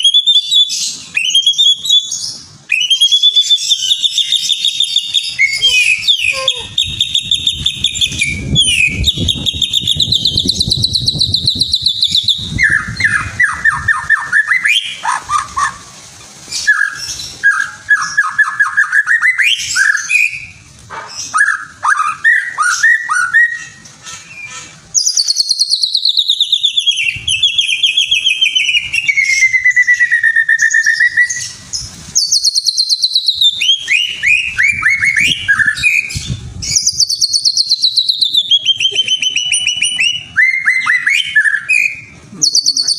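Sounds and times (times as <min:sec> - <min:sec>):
songbird singing trills: 0:00.0 - 0:15.7, 0:21.2 - 0:42.9.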